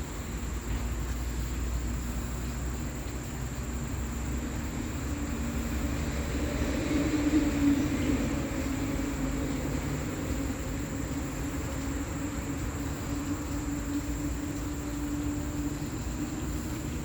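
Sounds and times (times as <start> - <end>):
passing vehicle rumble: 4.2 - 17.0.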